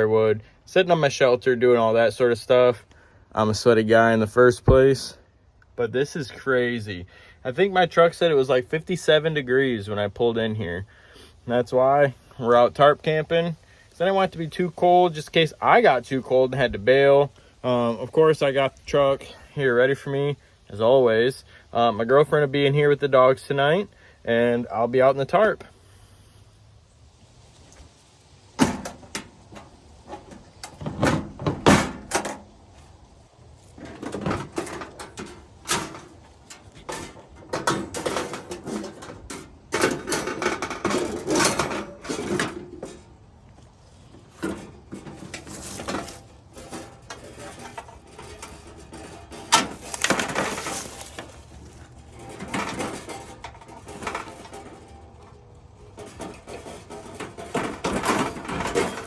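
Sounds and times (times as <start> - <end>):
rustling: 24.0 - 59.0
objects knocking and clattering: 28.6 - 32.6, 33.6 - 59.0.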